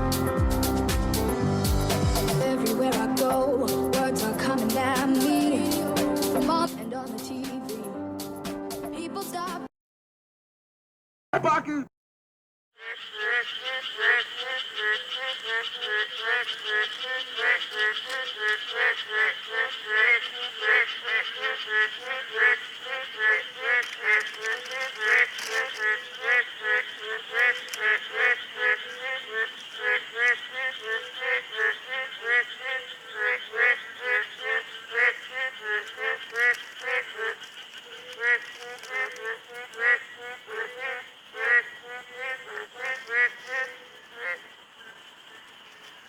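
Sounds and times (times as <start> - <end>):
frogs croaking: 12.8 - 46.0.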